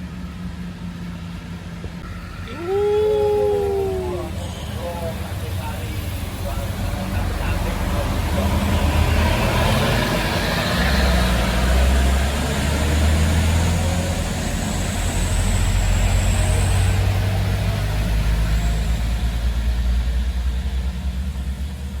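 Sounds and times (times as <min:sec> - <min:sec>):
bus engine droning: 0:00.0 - 0:22.0
tyres hissing on wet road: 0:04.4 - 0:21.9.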